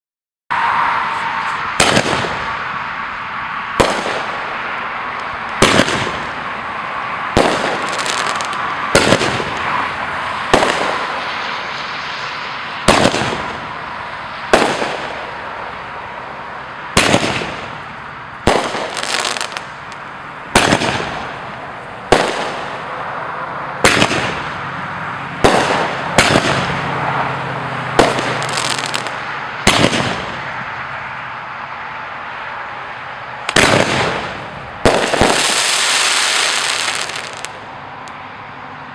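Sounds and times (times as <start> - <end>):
firework bangs: 1.6 - 2.8, 3.7 - 4.7, 5.6 - 6.5, 7.3 - 12.0, 12.8 - 13.8, 14.5 - 15.4, 16.9 - 22.9, 23.8 - 24.6, 25.4 - 27.0, 27.9 - 30.6, 33.5 - 37.6
firework hiss and crackle: 3.7 - 4.6, 7.3 - 13.8, 14.5 - 15.4, 17.0 - 23.0, 25.4 - 26.8, 28.0 - 30.5, 33.5 - 37.7.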